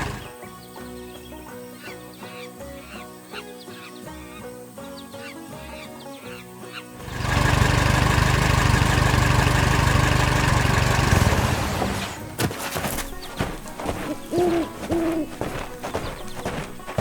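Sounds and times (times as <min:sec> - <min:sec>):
machine engine rumbling: 0:00.0 - 0:00.3, 0:07.0 - 0:14.1.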